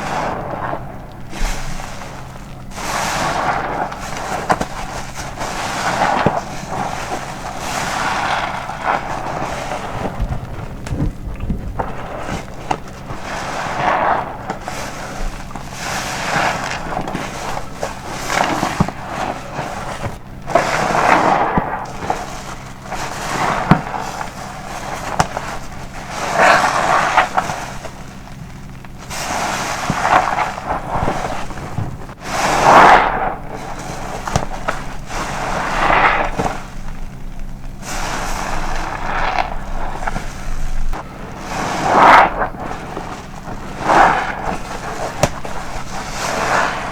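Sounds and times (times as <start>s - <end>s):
sponge squelching foam: 0.0s - 46.9s.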